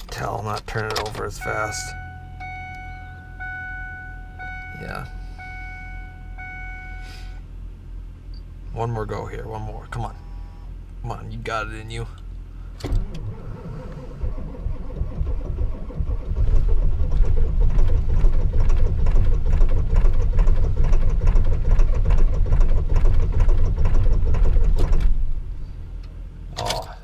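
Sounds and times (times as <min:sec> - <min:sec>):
diesel engine cranking slowly: 0:00.0 - 0:08.6, 0:12.0 - 0:27.0
engine knocking roughly: 0:14.2 - 0:24.8.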